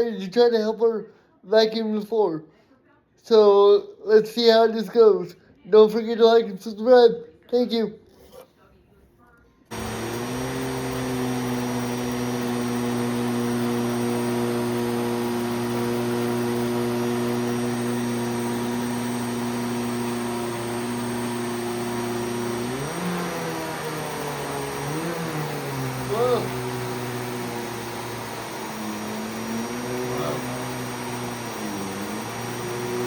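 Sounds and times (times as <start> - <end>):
vacuum cleaner running: 9.7 - 33.0.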